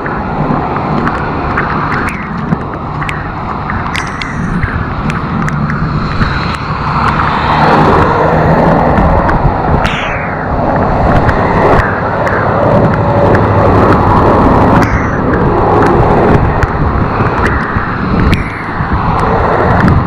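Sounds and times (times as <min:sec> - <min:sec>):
traffic engine hum: 0:00.0 - 0:20.0
tyres on wet street: 0:00.0 - 0:20.0
vehicle sweeping past: 0:04.9 - 0:20.0.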